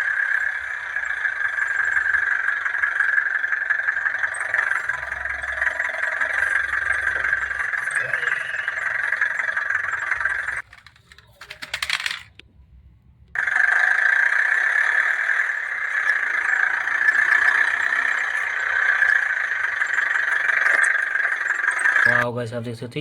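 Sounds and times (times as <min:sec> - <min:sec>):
toy car motor whirring: 0:00.0 - 0:12.4, 0:13.4 - 0:22.2
plastic clicks: 0:10.6 - 0:12.5.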